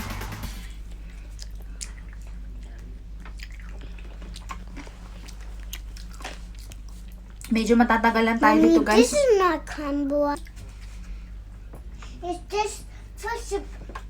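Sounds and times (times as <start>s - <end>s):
low steady hum: 0.0s - 14.0s
close-up chewing and mouth smacks: 1.0s - 7.6s.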